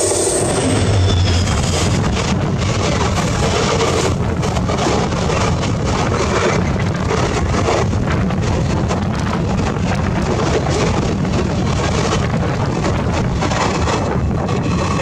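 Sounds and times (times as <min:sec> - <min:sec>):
moving train rumble and rattle: 0:00.0 - 0:15.0
train coaches rushing past: 0:00.0 - 0:15.0
wind buffeting microphone: 0:00.0 - 0:15.0.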